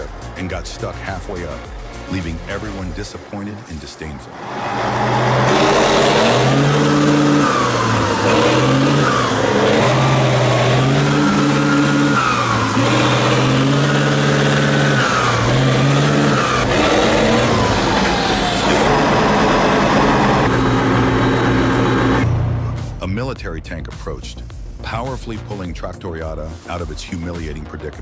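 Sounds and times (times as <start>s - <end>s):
tractor engine revving hard: 4.3s - 22.9s
high gliding tones: 4.3s - 23.2s.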